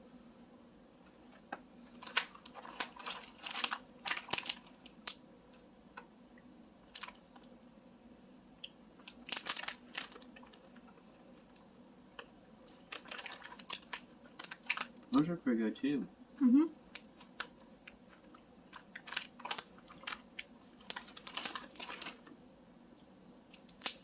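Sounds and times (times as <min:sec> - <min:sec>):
plastic packaging crinkling: 0:01.1 - 0:05.2, 0:06.8 - 0:07.5, 0:09.0 - 0:15.2, 0:16.8 - 0:22.3, 0:23.5 - 0:24.0.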